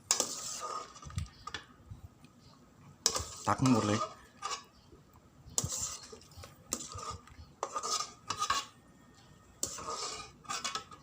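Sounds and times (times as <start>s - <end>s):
metal ladle scraping a pot: 0.0s - 1.7s, 3.0s - 4.8s, 5.5s - 11.0s.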